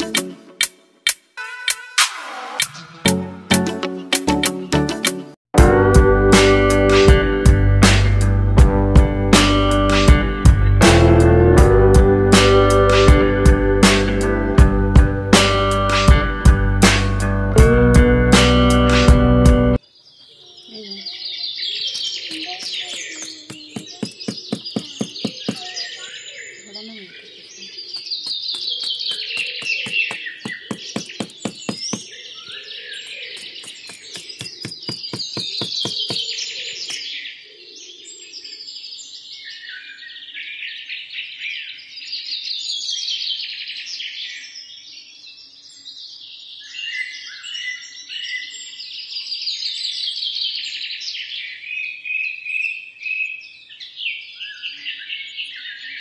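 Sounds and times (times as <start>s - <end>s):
songbirds singing and chirping: 19.8s - 56.0s.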